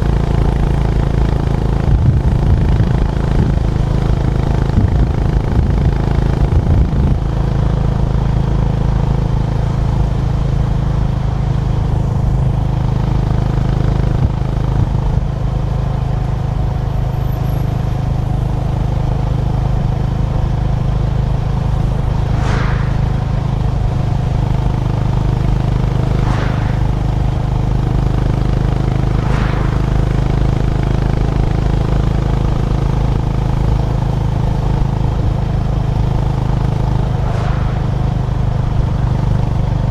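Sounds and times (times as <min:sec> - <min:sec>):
motorcycle engine running: 0:00.0 - 0:39.9
brief whooshes: 0:21.4 - 0:31.8, 0:35.7 - 0:39.7.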